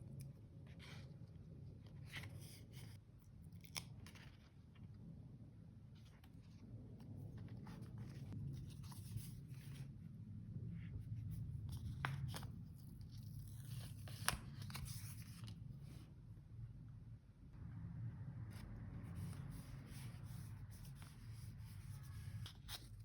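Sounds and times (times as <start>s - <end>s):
steady low hum: 4.7s - 23.0s
paper rustling and peeling: 11.2s - 16.1s.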